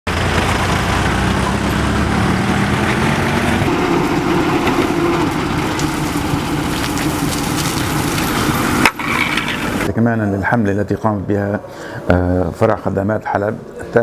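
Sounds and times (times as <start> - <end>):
heavy machinery engine running: 0.1 - 9.9.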